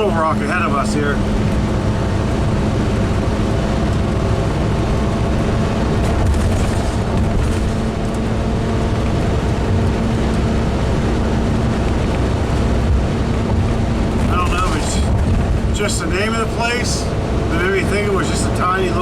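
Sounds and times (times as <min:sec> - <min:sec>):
constant hum: 0:00.0 - 0:19.0
engine and road noise: 0:00.0 - 0:19.0.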